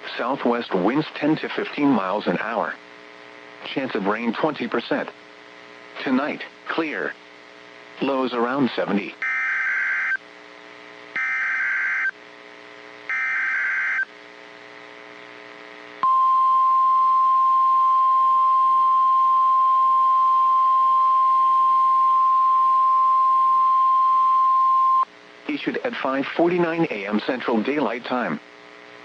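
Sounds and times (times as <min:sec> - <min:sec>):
buzzing data screech bursts: 0:09.2 - 0:10.2, 0:11.2 - 0:12.1, 0:13.1 - 0:14.1
steady alarm tone: 0:09.2 - 0:10.2, 0:11.2 - 0:12.1, 0:13.1 - 0:14.1, 0:16.0 - 0:25.0.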